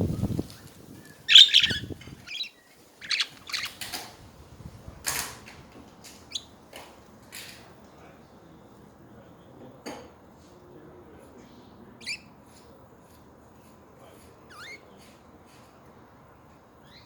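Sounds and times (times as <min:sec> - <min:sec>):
budgerigars chirping: 0:01.3 - 0:03.9.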